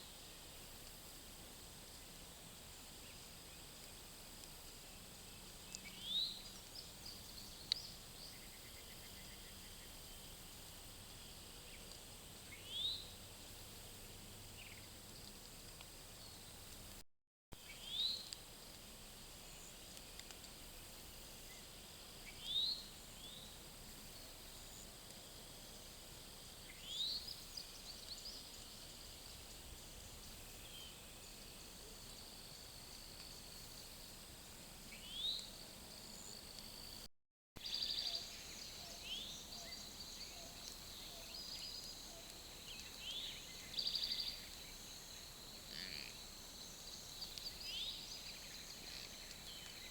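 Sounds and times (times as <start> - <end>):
high insect hum: 19.2 - 49.9.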